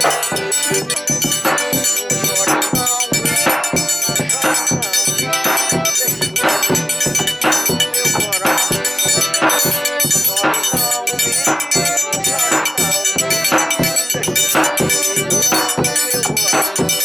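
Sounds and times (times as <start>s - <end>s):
live folk dance music: 0.0s - 17.0s.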